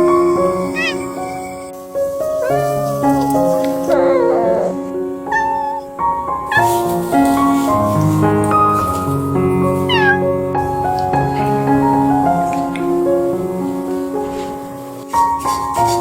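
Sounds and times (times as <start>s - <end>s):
background music with piano notes: 0.0s - 16.0s
cat meowing: 0.4s - 1.2s, 2.4s - 6.9s, 9.9s - 10.3s.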